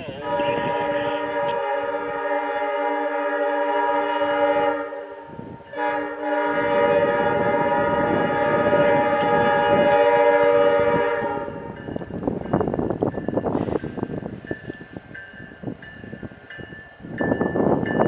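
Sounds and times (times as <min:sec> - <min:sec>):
locomotive air horn: 0:00.0 - 0:11.8
locomotive engine rumble: 0:00.0 - 0:18.0
train rattling clatter: 0:05.8 - 0:18.0.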